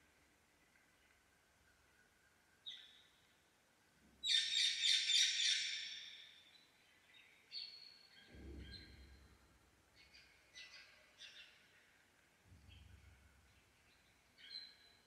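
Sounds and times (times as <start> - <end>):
low thump: 8.3 - 9.6.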